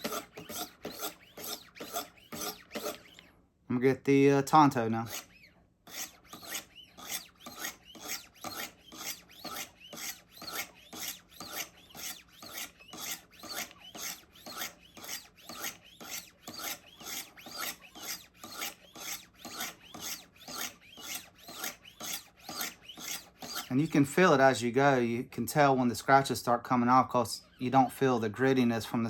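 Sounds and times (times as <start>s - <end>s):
knife rasping on sharpening stones: 0.0s - 3.2s, 5.0s - 23.7s.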